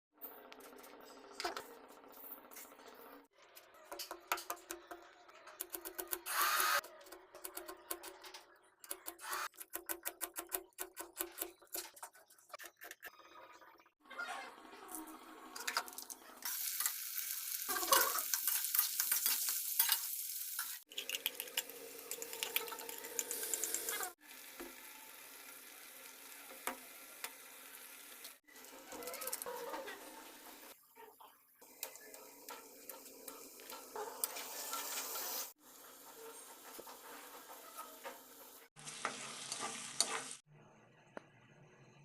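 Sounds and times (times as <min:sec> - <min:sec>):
food sizzling in a pan: 0:15.0 - 0:30.8, 0:31.6 - 0:40.4.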